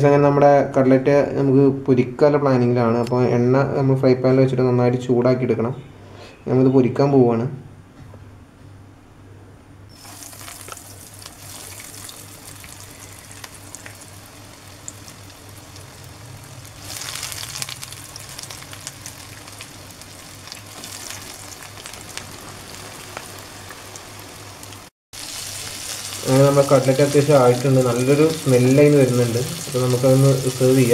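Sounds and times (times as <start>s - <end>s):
food sizzling in hot oil: 9.9s - 30.9s.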